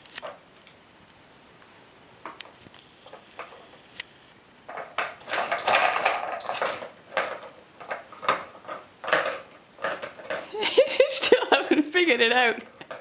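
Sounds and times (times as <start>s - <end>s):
puzzle pieces clattering: 4.7s - 11.4s.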